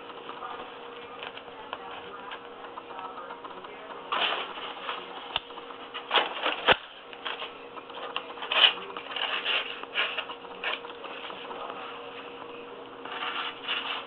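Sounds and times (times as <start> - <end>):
rustling and scraping: 4.1 - 14.0.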